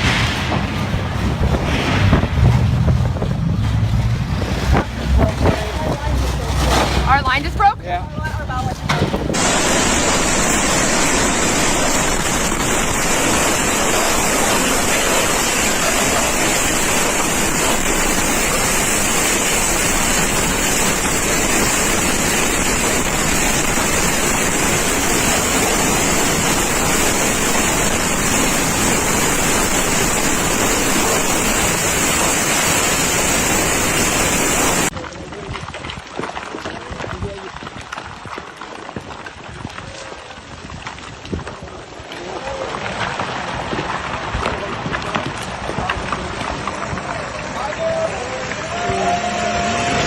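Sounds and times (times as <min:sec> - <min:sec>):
turbulent water rushing: 0:00.0 - 0:50.0.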